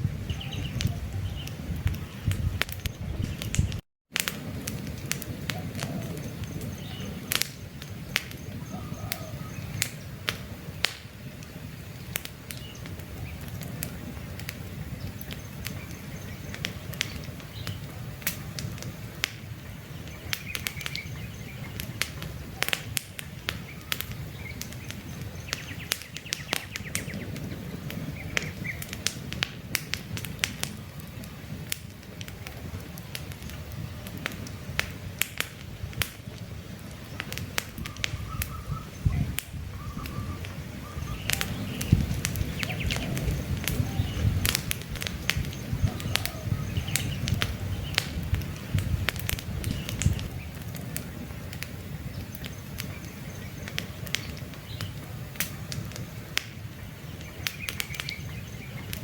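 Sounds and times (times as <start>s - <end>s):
campfire crackling and popping: 0.0s - 59.0s
low rumble of flames: 0.0s - 59.0s
faint bird chirps: 8.3s - 10.2s, 37.8s - 44.4s, 45.4s - 48.0s.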